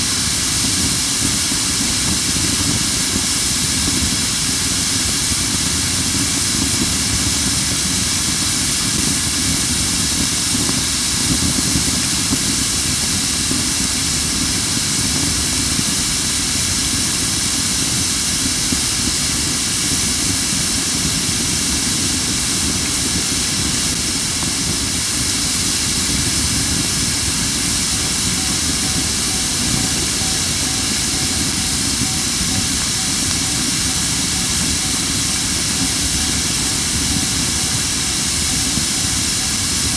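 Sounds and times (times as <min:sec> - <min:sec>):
fire crackling: 0:00.0 - 0:39.9
wood burning with steady hiss: 0:00.0 - 0:39.9.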